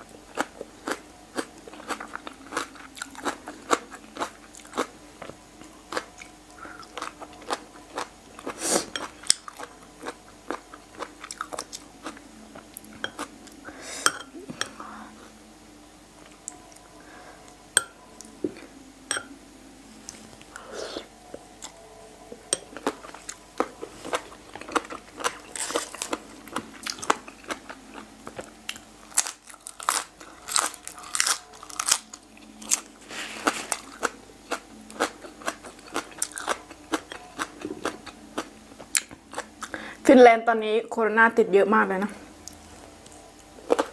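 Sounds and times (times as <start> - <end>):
crunchy chewing and biting: 22.7 - 39.8.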